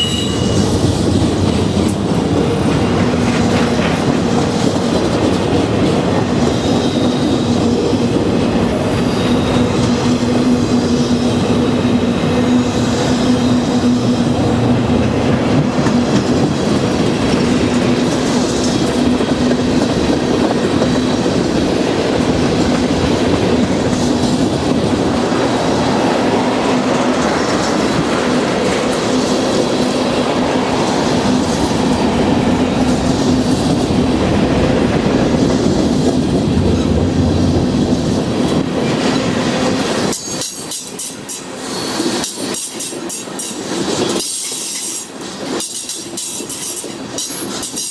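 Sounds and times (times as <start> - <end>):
high wheel squeal: 0.0 - 1.0, 8.6 - 14.6
freight train cars rolling: 0.0 - 47.9
wheels clicking over rail joints: 38.5 - 47.9.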